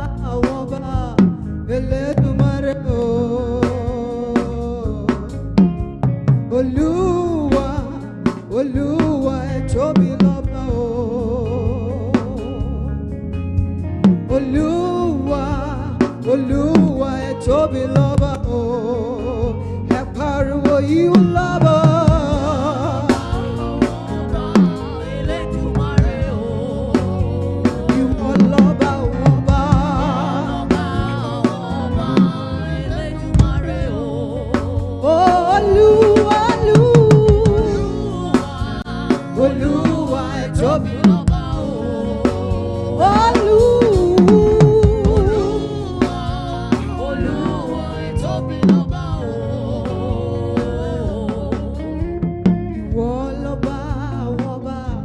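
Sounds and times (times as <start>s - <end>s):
band with drum kit playing: 0.0s - 55.0s
person singing long notes: 14.3s - 55.0s.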